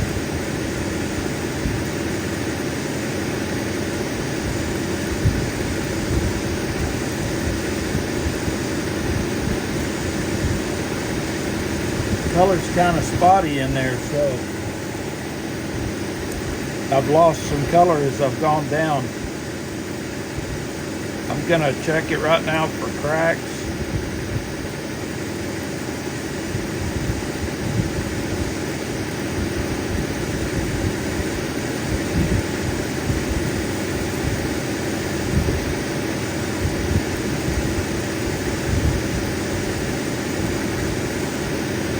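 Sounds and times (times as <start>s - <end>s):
grinding machine humming: 0.0s - 41.9s.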